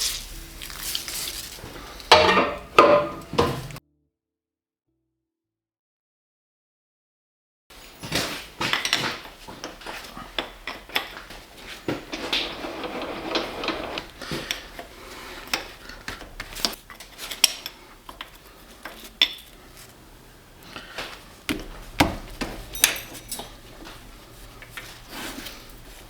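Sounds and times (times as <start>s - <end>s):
metal scraping: 11.0s - 15.8s
metal clinking on metal: 22.2s - 24.0s.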